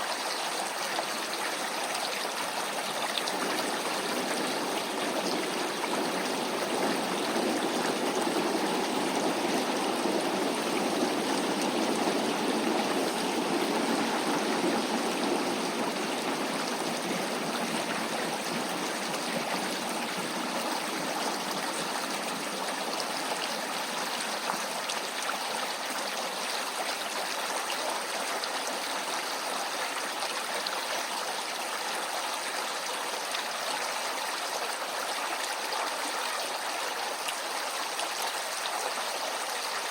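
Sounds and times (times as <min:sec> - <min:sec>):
stream flowing: 0:00.0 - 0:39.9
train rumbling past: 0:03.2 - 0:24.7.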